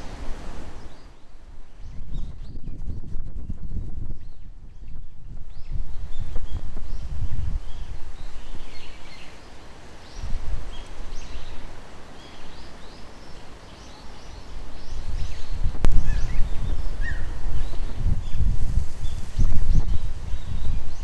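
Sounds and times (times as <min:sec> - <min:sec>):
low rumble in gusts: 0:00.0 - 0:09.2, 0:14.6 - 0:21.0
birds chirping: 0:03.4 - 0:21.0.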